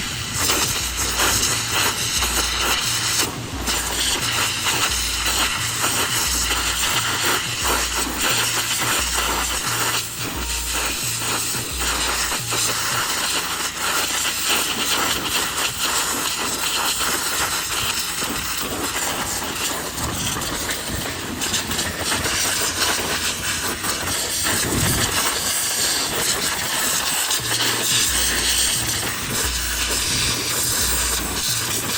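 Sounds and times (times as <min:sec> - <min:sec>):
pressure washer spraying: 0:00.0 - 0:31.9.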